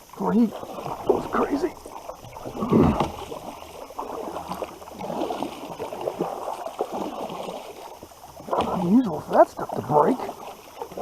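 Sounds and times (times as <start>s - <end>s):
water splashing around kayak: 0.0s - 11.0s.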